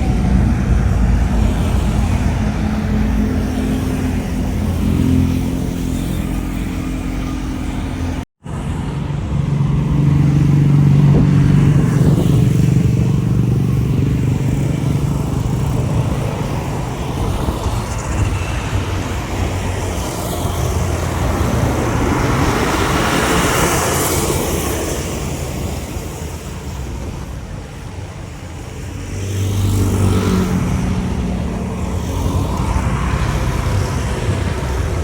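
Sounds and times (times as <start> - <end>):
jet airliner taking off: 0.0 - 35.0.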